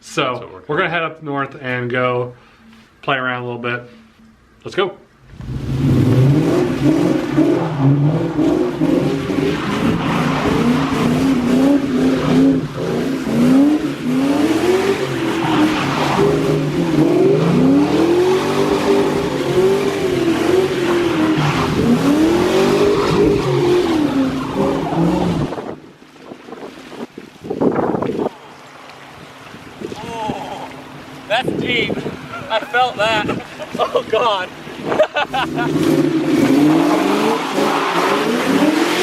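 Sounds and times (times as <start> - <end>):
car engine revving hard: 5.3 - 25.8, 34.8 - 39.0.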